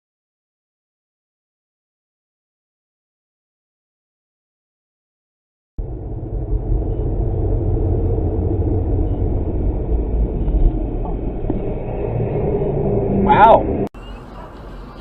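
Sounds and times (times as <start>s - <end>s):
vehicle engine and road rumble: 5.8s - 15.0s.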